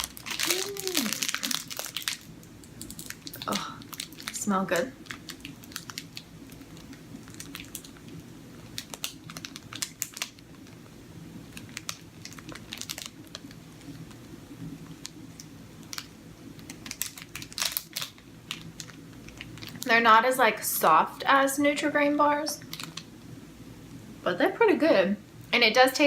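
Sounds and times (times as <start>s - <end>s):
plastic wrapper crinkling: 0.0s - 10.8s, 11.5s - 19.9s, 22.6s - 23.2s
low room hum: 0.0s - 26.0s.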